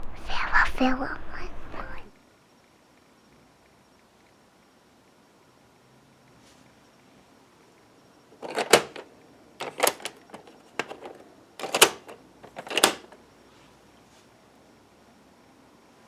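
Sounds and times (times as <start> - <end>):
plastic toy clicking and clattering: 8.4 - 13.2.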